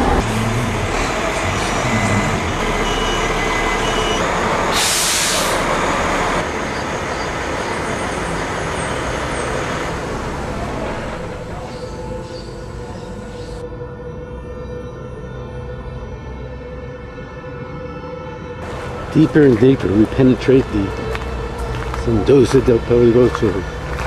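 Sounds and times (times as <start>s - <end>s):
vehicle road noise: 0.0s - 13.7s, 18.4s - 24.0s
loud hiss: 4.7s - 5.8s.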